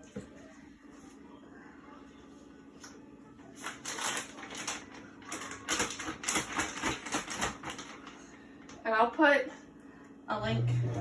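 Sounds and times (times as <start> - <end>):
plastic bag crinkling: 3.6 - 8.8
steady low hum: 8.0 - 11.0.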